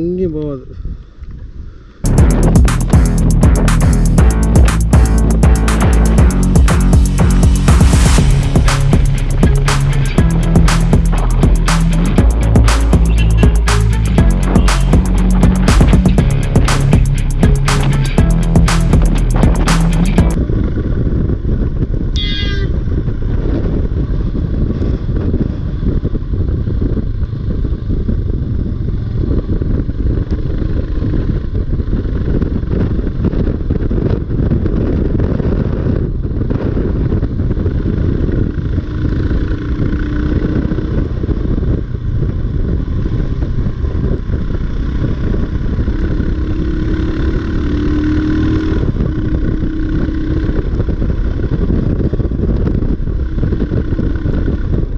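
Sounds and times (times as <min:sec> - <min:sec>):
motorcycle engine running: 0:02.1 - 0:20.4
rush of low noise: 0:02.1 - 0:20.4.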